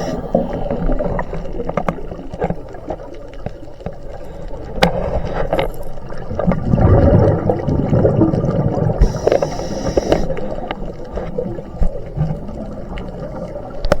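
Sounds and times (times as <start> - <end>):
water bubbling and gurgling: 0.0 - 14.0
hiss: 9.0 - 10.4.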